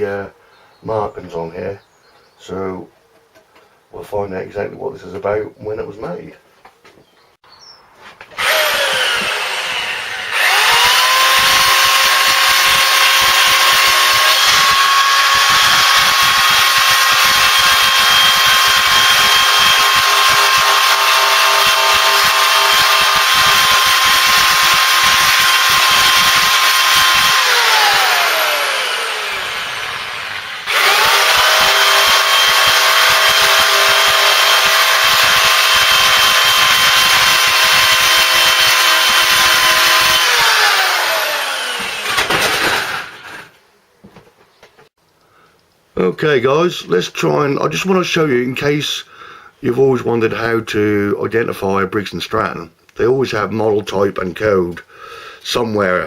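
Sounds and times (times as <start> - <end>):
wire wheel scrubbing metal: 8.4 - 43.5.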